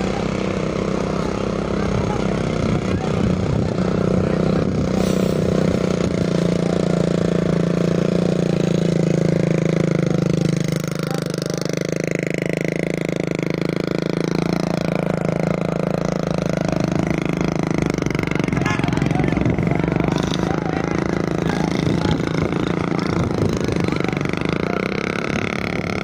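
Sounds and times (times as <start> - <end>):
engine humming steadily: 0.0 - 26.0.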